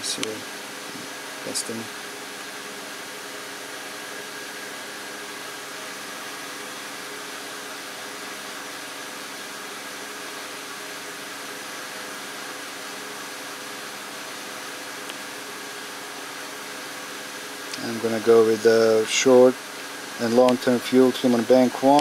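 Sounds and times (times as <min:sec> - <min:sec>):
even hiss: 0:00.0 - 0:01.9.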